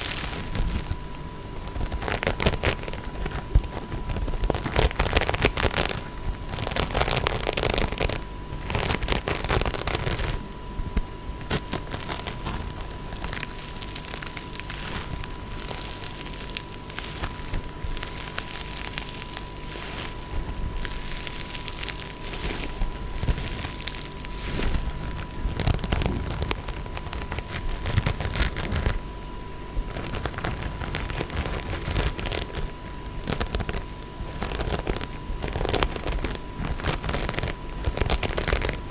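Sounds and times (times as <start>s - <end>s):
crackly tapping and scratching: 0.0s - 38.9s.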